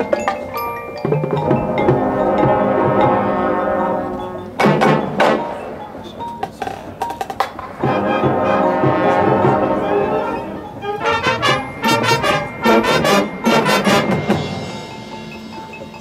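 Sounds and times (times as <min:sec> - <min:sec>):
drums and percussion hits: 0:00.0 - 0:03.8, 0:04.6 - 0:05.6, 0:06.3 - 0:09.8, 0:11.1 - 0:16.0
marching band brass chords: 0:01.2 - 0:05.9, 0:07.6 - 0:15.6.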